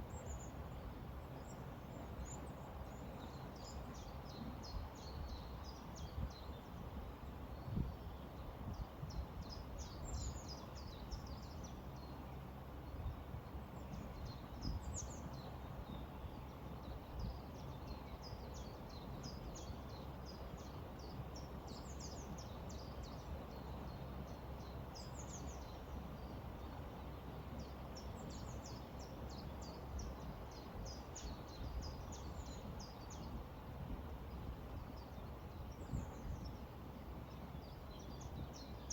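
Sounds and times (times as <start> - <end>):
small birds chirping: 13.8 - 38.9.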